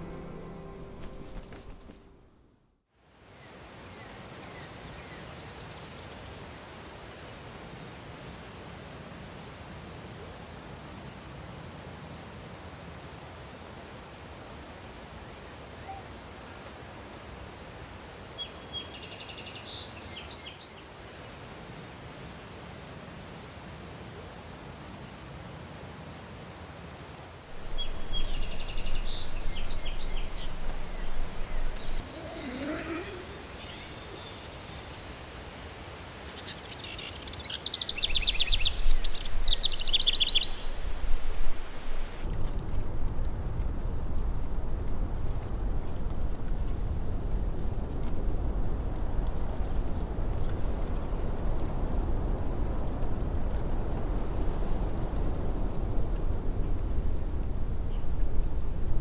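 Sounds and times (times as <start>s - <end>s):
low wind rush: 27.5s - 59.0s.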